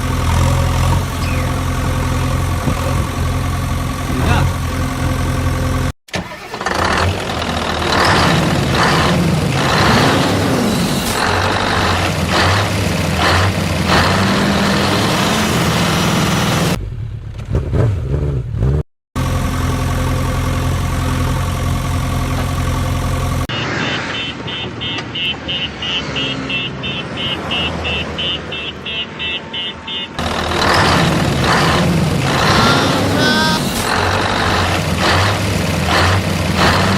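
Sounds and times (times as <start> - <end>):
vehicle engines revving: 0.0 - 36.9
repeated beeping: 23.5 - 30.2.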